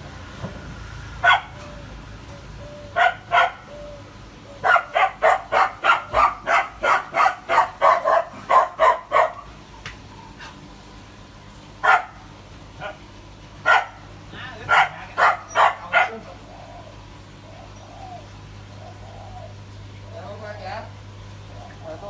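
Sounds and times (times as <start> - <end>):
dog barking: 1.2 - 1.6, 3.0 - 3.7, 4.6 - 9.5, 11.8 - 12.2, 13.6 - 14.1, 14.7 - 16.2.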